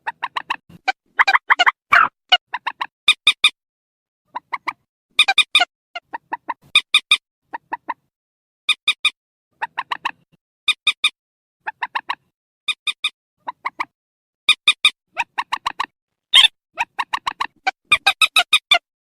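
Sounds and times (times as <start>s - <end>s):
bird clucking calls: 0.0s - 3.5s, 4.3s - 8.1s, 9.6s - 11.0s, 11.6s - 12.3s, 13.4s - 13.9s, 14.6s - 18.8s.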